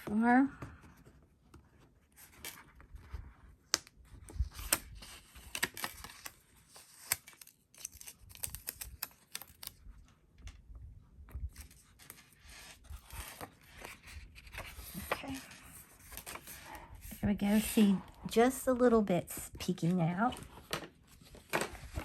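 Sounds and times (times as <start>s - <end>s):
paper rustling: 11.3s - 18.1s, 19.8s - 22.0s.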